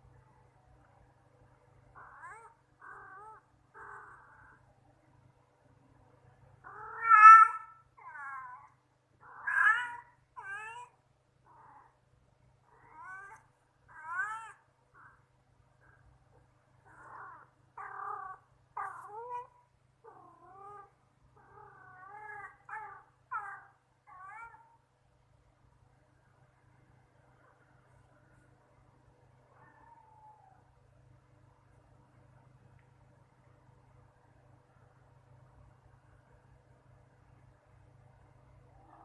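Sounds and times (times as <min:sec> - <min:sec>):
cats meowing: 0:06.7 - 0:08.6, 0:09.3 - 0:10.9.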